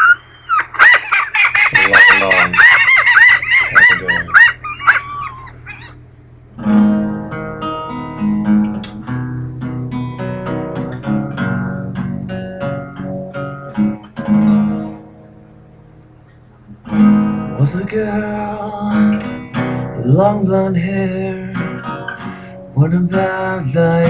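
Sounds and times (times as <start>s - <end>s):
seagull calling: 0.0s - 6.1s
acoustic guitar strumming chords: 6.5s - 24.0s.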